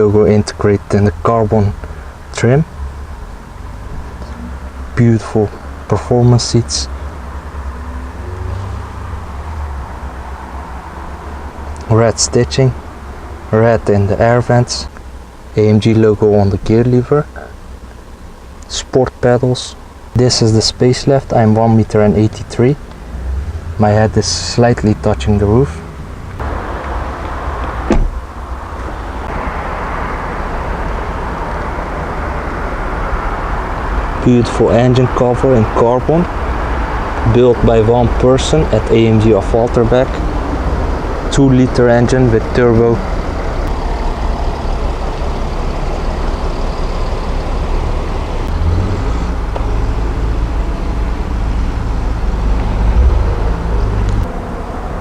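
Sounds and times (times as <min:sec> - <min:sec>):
steady low rumble: 0:09.1 - 0:55.0
car door shutting: 0:27.6 - 0:29.0.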